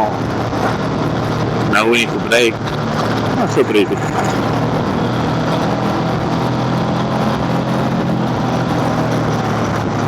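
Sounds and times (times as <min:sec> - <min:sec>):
road noise: 0:00.0 - 0:10.0
scooter engine running: 0:00.0 - 0:10.0
wind rush: 0:00.0 - 0:10.0.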